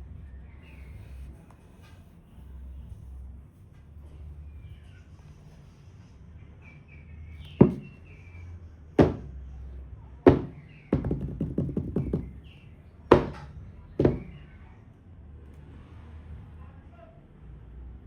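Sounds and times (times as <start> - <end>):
hard object knocking: 7.6 - 8.0, 9.0 - 9.3, 10.3 - 12.4, 13.1 - 14.4.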